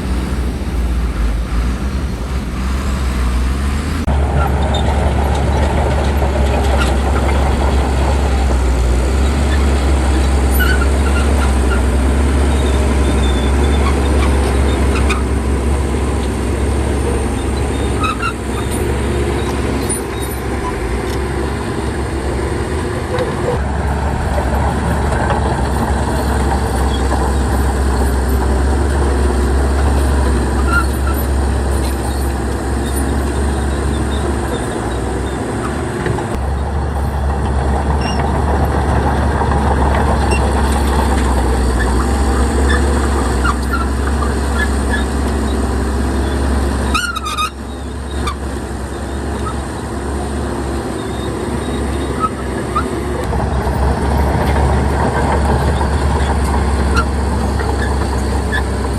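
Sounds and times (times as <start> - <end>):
short squeaks: 0.0 - 4.1, 29.6 - 36.4, 38.0 - 38.3, 46.2 - 49.9, 50.8 - 58.9
diesel earthmoving machinery rumbling: 0.0 - 58.9.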